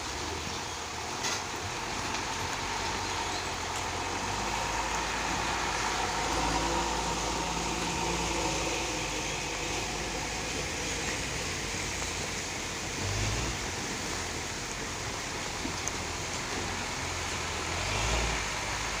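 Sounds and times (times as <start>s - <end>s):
heavy truck engine rumbling: 0.0s - 19.0s.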